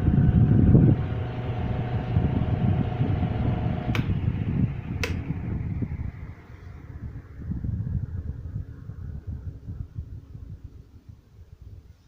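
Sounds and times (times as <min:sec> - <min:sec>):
faint motor hum: 0:00.0 - 0:10.2
electric fan whooshing: 0:00.0 - 0:10.8
sharp switch clicks: 0:03.9 - 0:04.2, 0:05.0 - 0:05.3.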